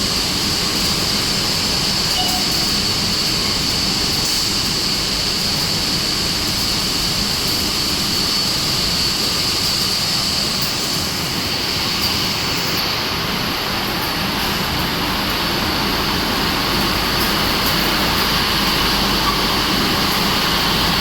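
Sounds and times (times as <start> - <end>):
wire drawing machinery running: 0.0 - 21.0.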